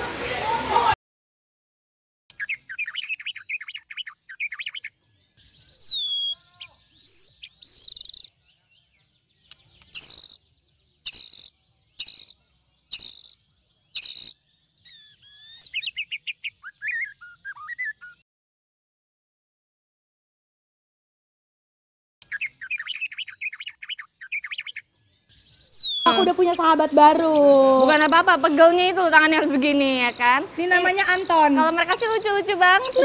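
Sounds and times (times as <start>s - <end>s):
birds squawking: 2.3s - 5.0s, 5.6s - 8.4s, 9.7s - 10.4s, 11.0s - 18.2s, 22.2s - 24.9s, 25.5s - 33.0s
loud harsh bird calls: 2.3s - 8.7s, 9.5s - 18.2s, 22.2s - 33.0s
birds chirping: 2.3s - 18.2s, 22.2s - 33.0s
bird whistles sliding in pitch: 5.7s - 6.4s, 16.6s - 18.2s.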